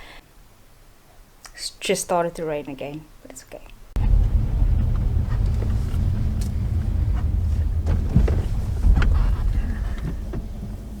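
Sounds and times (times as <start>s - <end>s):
car road rumble: 4.0s - 11.0s.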